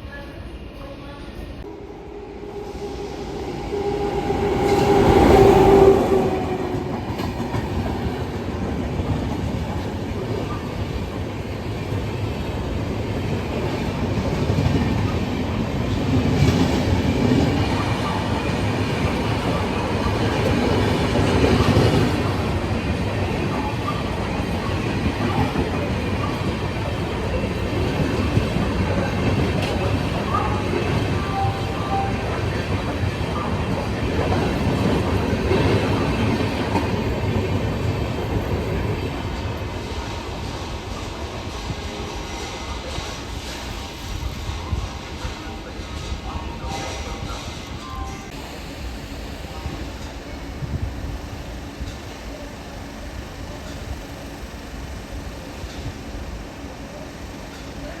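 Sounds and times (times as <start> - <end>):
train rumbling on rails: 0.0 - 58.0
train horn: 1.2 - 7.5.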